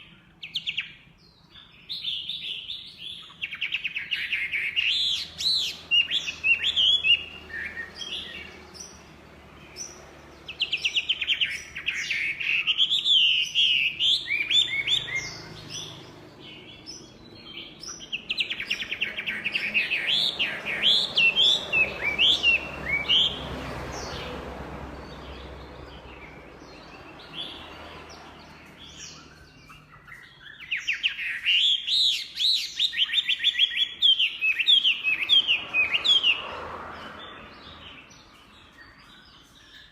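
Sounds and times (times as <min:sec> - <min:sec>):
bird singing whistled notes: 0:09.8 - 0:23.4, 0:28.8 - 0:36.4.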